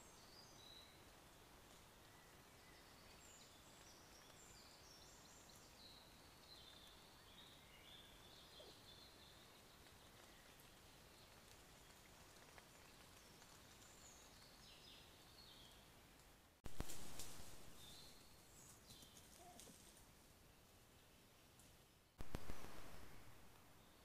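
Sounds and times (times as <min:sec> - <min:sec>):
songbird singing faintly: 0:00.0 - 0:24.0
steady hiss: 0:16.7 - 0:18.6, 0:22.2 - 0:24.0.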